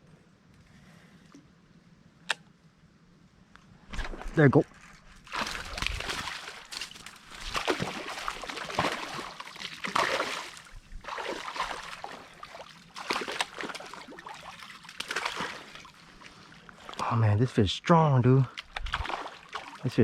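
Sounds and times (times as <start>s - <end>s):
water splashing and sloshing: 3.8s - 17.2s, 18.4s - 20.0s.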